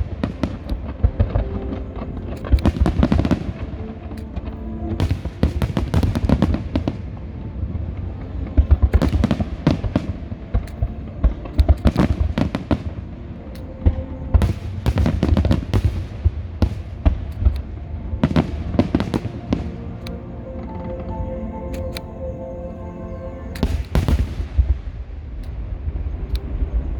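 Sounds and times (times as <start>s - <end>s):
fireworks crackling: 5.0s - 7.2s.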